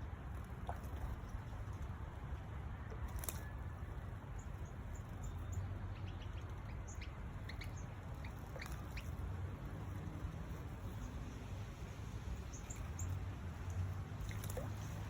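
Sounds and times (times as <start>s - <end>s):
small birds chirping: 4.2s - 15.0s.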